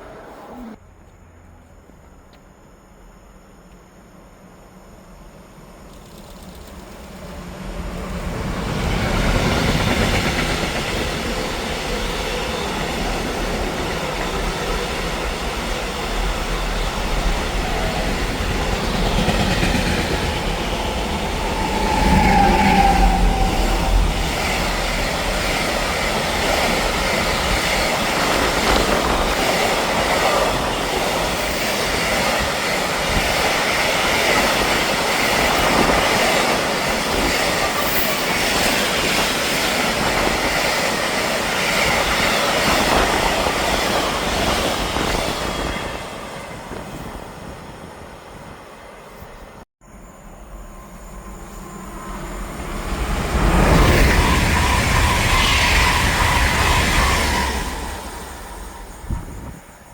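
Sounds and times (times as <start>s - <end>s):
train wheels rushing on rails: 5.0s - 49.6s, 50.6s - 59.9s
high wheel squeal: 20.4s - 25.8s.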